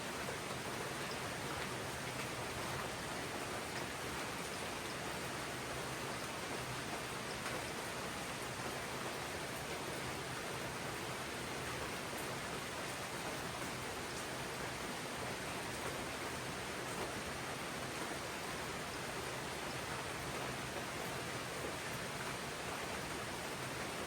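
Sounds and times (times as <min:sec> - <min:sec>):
rain on foliage: 0:00.0 - 0:24.0.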